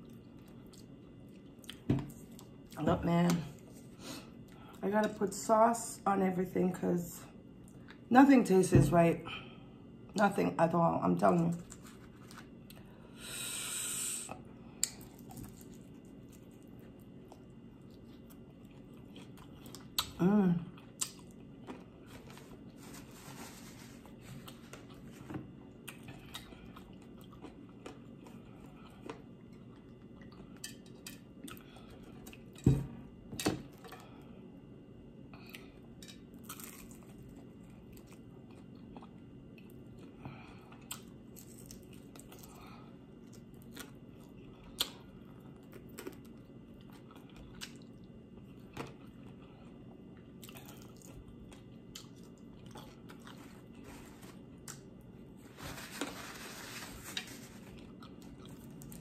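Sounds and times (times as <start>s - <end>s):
chewing and biting food: 0.0s - 2.8s, 14.8s - 22.8s, 24.0s - 32.6s, 35.4s - 55.4s, 57.6s - 59.0s.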